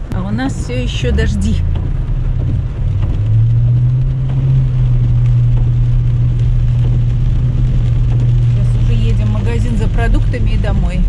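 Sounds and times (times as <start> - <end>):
car engine and road drone: 0.0 - 11.0.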